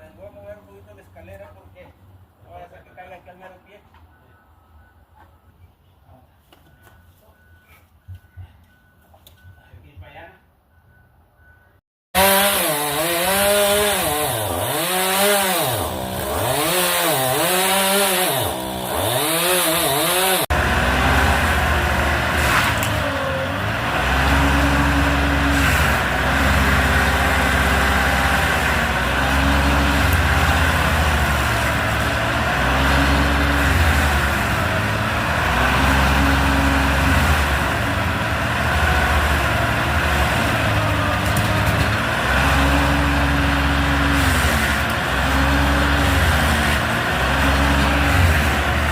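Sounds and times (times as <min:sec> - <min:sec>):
chainsaw revving: 0:12.2 - 0:48.9
heavy engine droning: 0:18.3 - 0:48.9.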